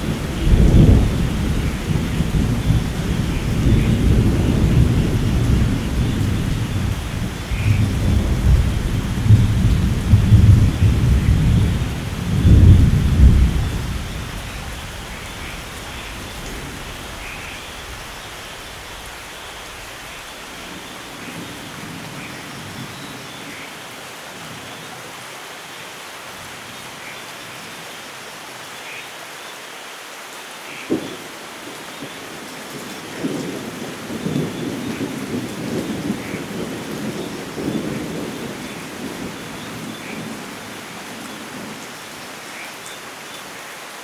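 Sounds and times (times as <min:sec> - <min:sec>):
thunder rumbling: 0:00.0 - 0:22.9, 0:32.0 - 0:41.8
heavy rainfall: 0:00.0 - 0:44.0.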